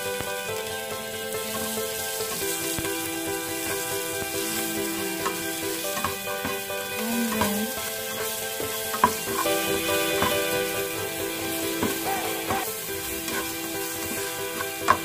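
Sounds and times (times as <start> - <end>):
garlic sizzling in hot oil: 0.0 - 15.0
spatula tapping a pan: 5.2 - 6.7, 7.3 - 10.7, 11.4 - 15.0.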